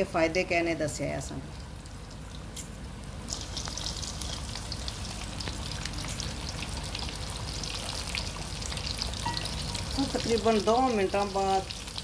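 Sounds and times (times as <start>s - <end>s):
chicken frying in hot oil: 3.2s - 12.0s.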